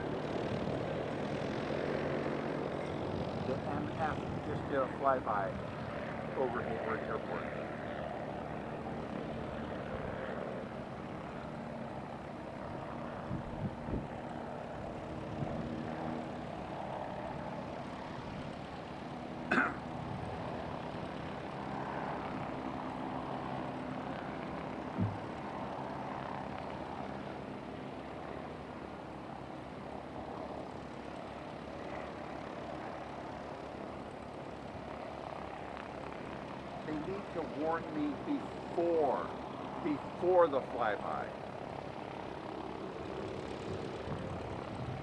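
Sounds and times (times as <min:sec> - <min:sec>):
airship propeller engine drone: 0:00.0 - 0:45.0
short knocks: 0:25.0 - 0:25.3.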